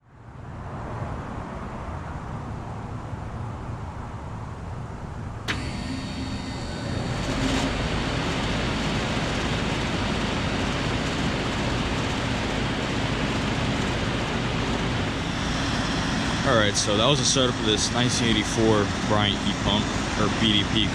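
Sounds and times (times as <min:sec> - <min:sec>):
heat pump switch click: 0:05.5 - 0:07.8
heat pump running hum: 0:05.5 - 0:20.9.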